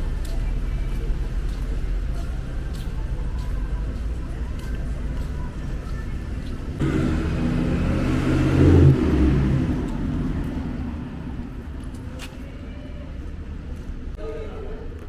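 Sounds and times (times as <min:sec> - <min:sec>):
motor vehicle passing: 0:03.6 - 0:12.3.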